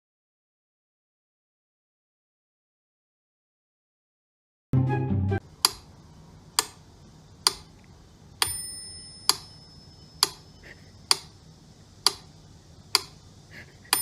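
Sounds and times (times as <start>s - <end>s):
sharp clock-like ticks: 5.6s - 5.9s, 7.4s - 7.7s, 10.2s - 10.5s, 11.1s - 11.4s, 12.0s - 12.3s, 12.9s - 13.2s
bell-like ring: 8.4s - 10.2s.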